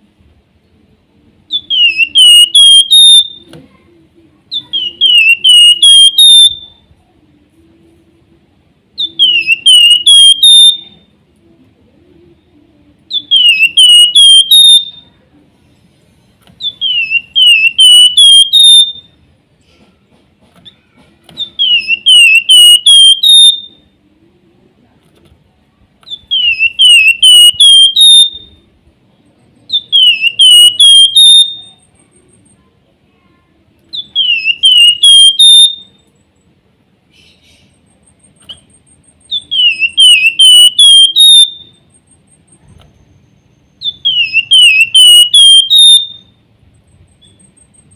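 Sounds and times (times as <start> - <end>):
bird whistled song: 1.5 - 3.5, 4.5 - 6.9, 9.0 - 11.2, 13.1 - 15.2, 16.6 - 19.2, 21.4 - 24.0, 26.0 - 28.6, 29.7 - 32.1, 33.9 - 36.1, 37.1 - 46.4, 47.0 - 47.9.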